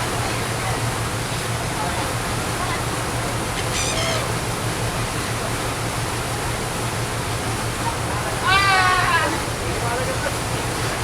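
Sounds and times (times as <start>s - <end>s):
seagull call: 3.5s - 4.4s.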